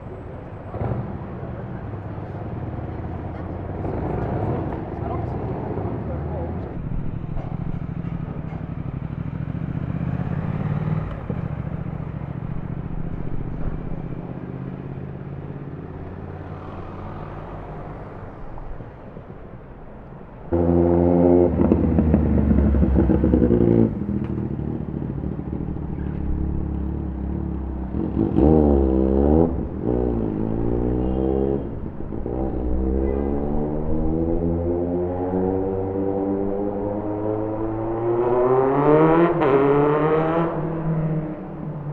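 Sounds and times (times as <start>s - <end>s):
motorcycle engines in traffic: 0.0s - 41.9s
engine revving: 20.5s - 41.6s.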